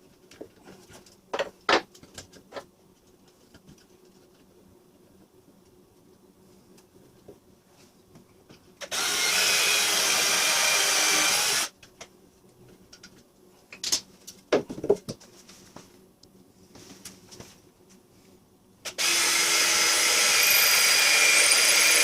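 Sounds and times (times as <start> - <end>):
power drill running: 8.8 - 11.7, 18.9 - 22.0.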